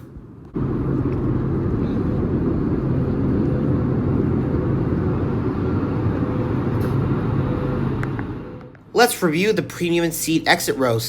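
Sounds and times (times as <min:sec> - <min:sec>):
aircraft cabin engine drone: 0:00.0 - 0:11.0
constant low hum: 0:00.0 - 0:11.0.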